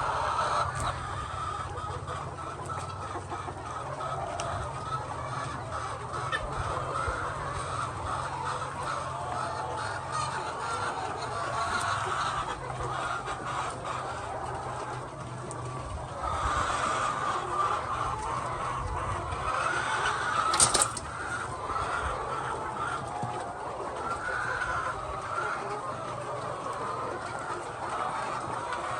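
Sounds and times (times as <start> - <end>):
chickens clucking: 0.0 - 28.9
small clicks: 20.5 - 21.1.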